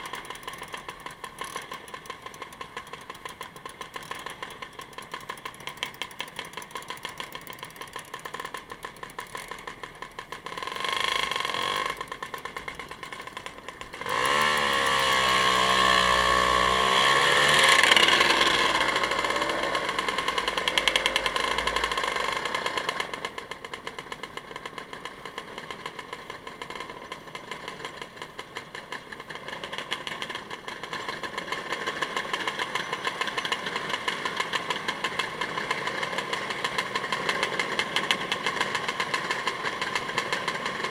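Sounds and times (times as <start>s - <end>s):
louder engine with changing pitch: 0.0s - 23.7s
engine running with fast pulse: 0.0s - 40.9s.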